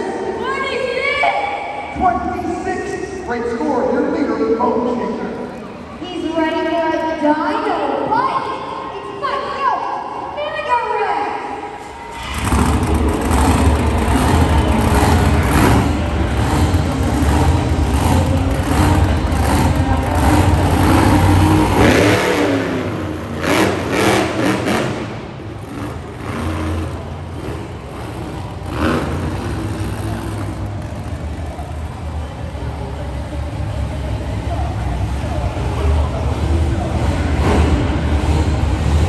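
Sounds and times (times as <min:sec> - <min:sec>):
monster truck engine revving: 0:11.8 - 0:39.0.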